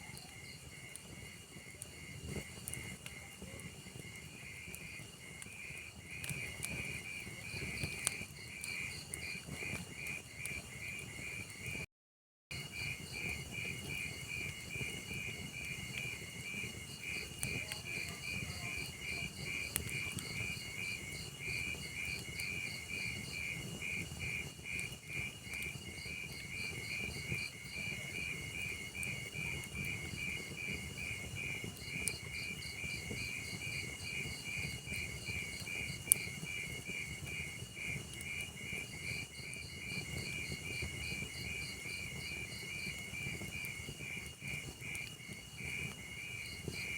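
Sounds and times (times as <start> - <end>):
fire crackles and pops: 0.0 - 11.8, 12.5 - 46.9
log fire rumble: 0.0 - 11.8, 12.6 - 46.9
crickets chirping: 12.6 - 46.9.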